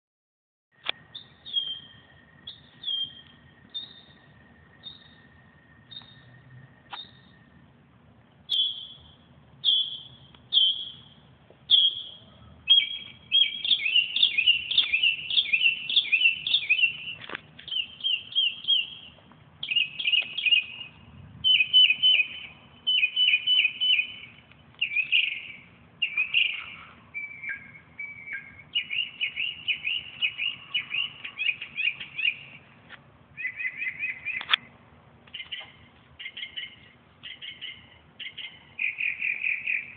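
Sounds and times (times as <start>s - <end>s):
bird chirping and chattering: 8.5s - 32.6s, 35.3s - 39.9s.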